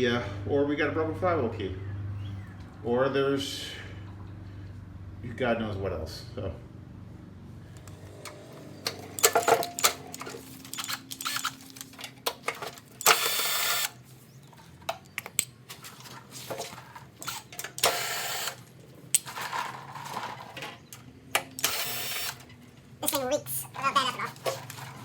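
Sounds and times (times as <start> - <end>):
tools clattering on metal engine parts: 8.1 - 13.2, 14.4 - 17.9, 18.6 - 21.6, 23.7 - 25.0.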